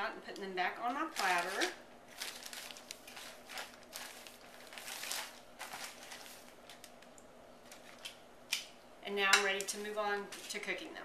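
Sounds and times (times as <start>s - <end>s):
plastic bag rustling: 1.0s - 8.2s.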